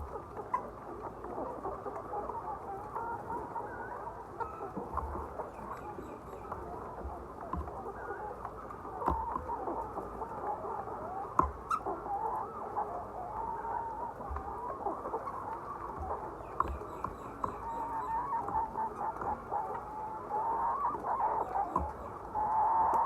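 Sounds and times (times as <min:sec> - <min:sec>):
hens clucking: 0:00.0 - 0:23.0.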